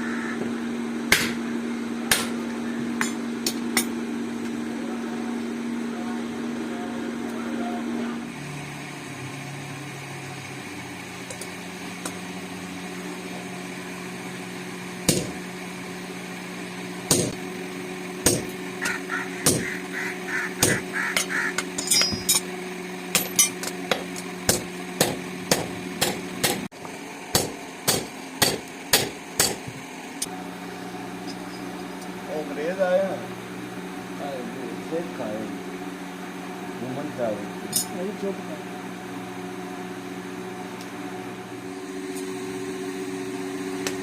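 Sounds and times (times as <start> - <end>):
steady low hum: 0.0 - 44.0
hammer striking steel: 1.1 - 1.4, 2.1 - 4.0, 15.1 - 15.4, 17.1 - 17.4, 18.2 - 19.8, 20.6 - 22.5, 23.1 - 26.7, 27.3 - 29.7.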